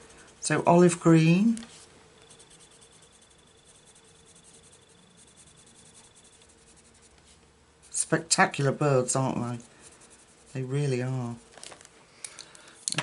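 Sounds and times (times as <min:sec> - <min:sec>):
thin high-pitched whine: 0:00.0 - 0:09.6
pencil strokes on paper: 0:00.0 - 0:11.5.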